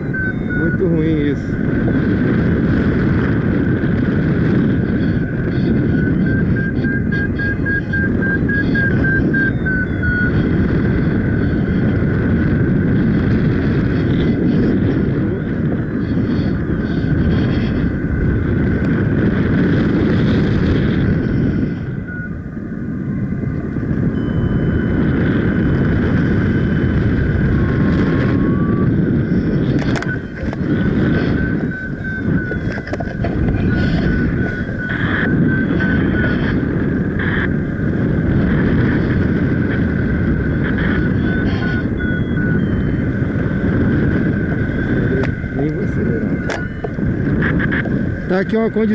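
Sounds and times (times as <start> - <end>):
wind buffeting microphone: 0.0 - 48.9
thin high pulsing tone: 4.8 - 10.4, 23.4 - 25.8, 26.5 - 37.2, 40.4 - 48.9.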